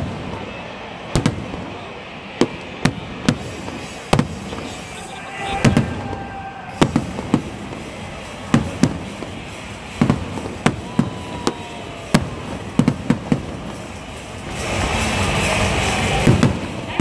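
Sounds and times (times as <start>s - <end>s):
firework shells bursting: 5.6s - 17.0s.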